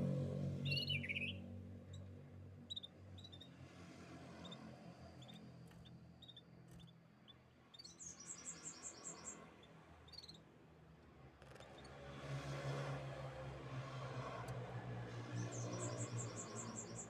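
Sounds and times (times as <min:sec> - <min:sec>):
canaries chirping and trilling: 0:00.6 - 0:02.0, 0:15.4 - 0:17.0.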